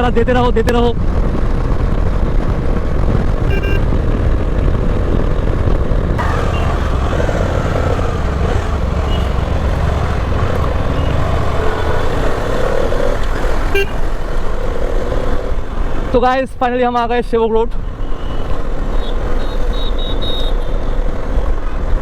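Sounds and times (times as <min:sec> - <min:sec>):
wind rush on microphone: 0:00.0 - 0:16.2
motorcycle engine rumble: 0:01.1 - 0:16.1.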